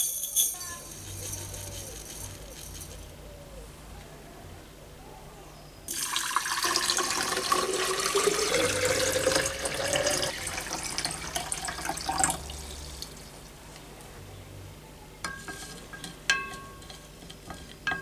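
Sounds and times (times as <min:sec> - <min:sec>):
tap water filling a container: 0:05.9 - 0:13.6.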